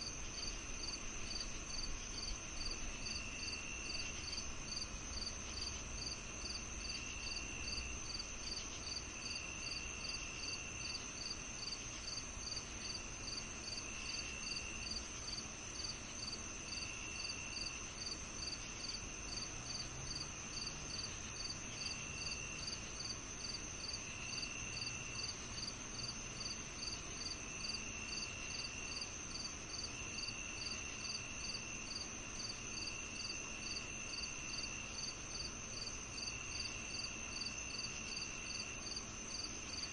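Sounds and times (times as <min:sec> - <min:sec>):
cricket chirping: 0:00.0 - 0:39.9
high insect trill: 0:00.0 - 0:39.9
lower insect trill: 0:00.0 - 0:39.9.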